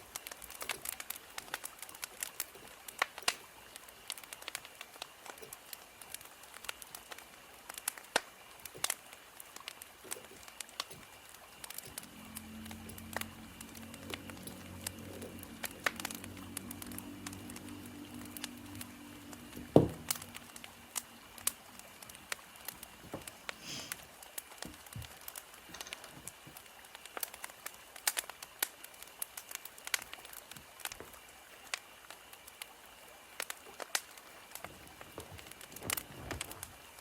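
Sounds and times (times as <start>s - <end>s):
wood fire crackling and popping: 0.0s - 37.0s
low steady hum: 10.1s - 27.0s.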